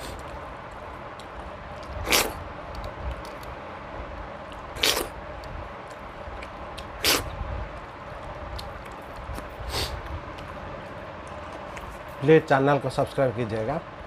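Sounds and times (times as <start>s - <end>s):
wet chewing clicks: 4.5s - 12.0s.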